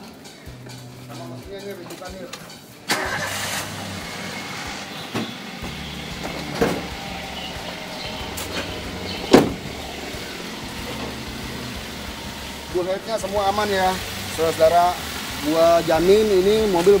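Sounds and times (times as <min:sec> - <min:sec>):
car engine idling: 0:02.9 - 0:17.0
car bonnet knocks: 0:09.2 - 0:09.7.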